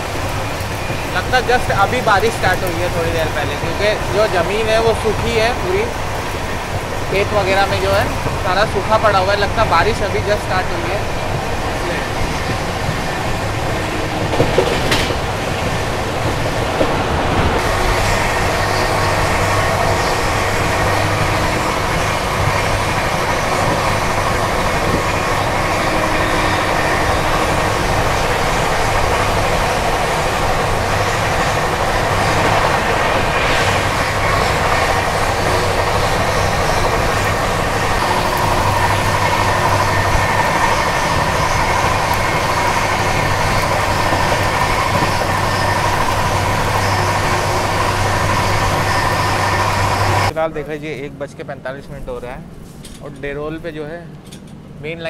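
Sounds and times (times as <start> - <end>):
train rumbling on track: 0.0 - 55.0.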